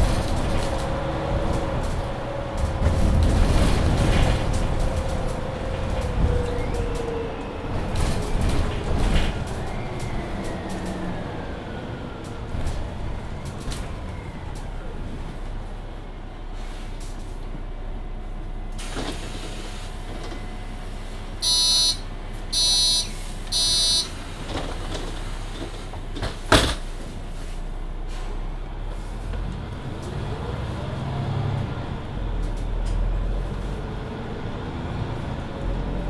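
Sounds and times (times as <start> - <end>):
bus engine humming: 0.0 - 36.0
loud warning beeps: 21.4 - 24.2
bus doors banging shut: 22.6 - 27.1.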